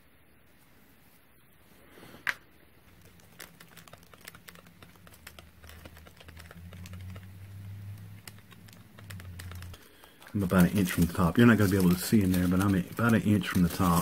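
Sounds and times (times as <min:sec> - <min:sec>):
small objects clicking on workbench: 0:03.0 - 0:10.9.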